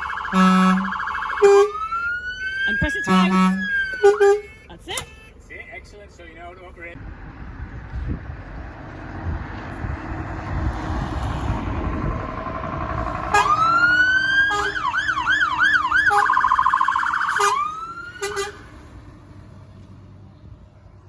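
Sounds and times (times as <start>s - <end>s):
electronic siren wail yelp warble: 0.0s - 4.3s, 13.2s - 18.6s
engine and road rumble: 0.0s - 21.0s.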